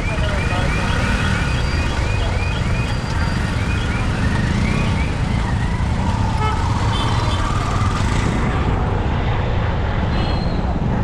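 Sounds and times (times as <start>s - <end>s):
warbling siren: 0.0s - 8.5s
motorcycle engine and wind rumble: 0.0s - 11.0s.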